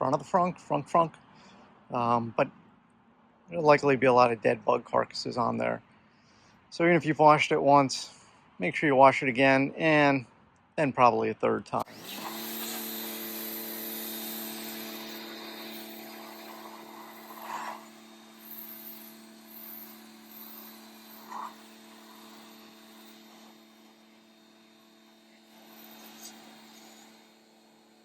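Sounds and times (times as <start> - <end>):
pressure washer running: 11.9 - 28.0.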